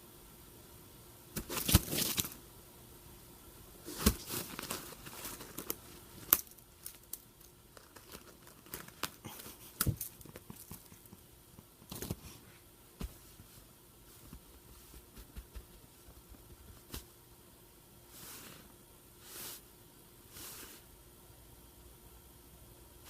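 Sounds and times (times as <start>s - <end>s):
crinkly toy rustling: 3.9s - 11.2s.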